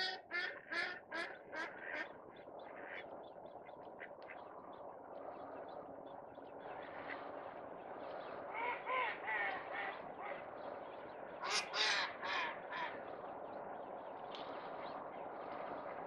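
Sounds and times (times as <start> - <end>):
bird calling: 0.0 - 2.0.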